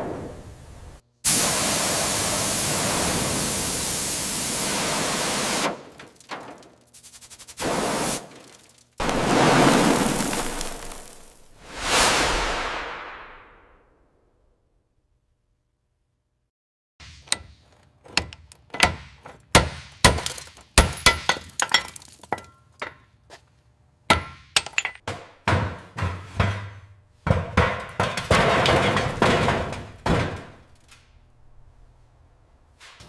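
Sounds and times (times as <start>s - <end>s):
crashing clatter: 5.7s - 6.9s, 20.1s - 23.0s, 27.8s - 31.0s.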